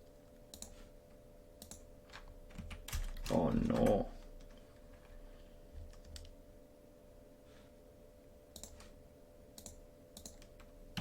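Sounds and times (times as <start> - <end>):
faint electrical hum: 0.0 - 11.0
mouse and keyboard clicks: 8.6 - 8.9, 9.6 - 10.7.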